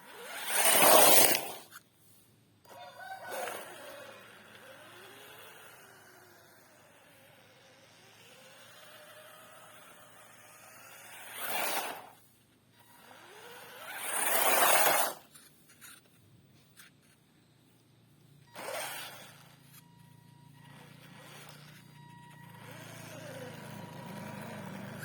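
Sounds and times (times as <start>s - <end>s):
rc car motor whine: 0.0s - 1.8s, 2.7s - 17.2s, 17.8s - 25.0s.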